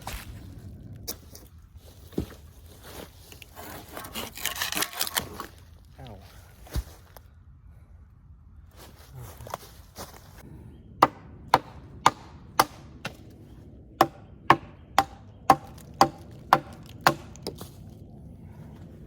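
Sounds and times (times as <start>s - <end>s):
sharp blows on wood: 11.0s - 13.2s, 14.0s - 17.4s.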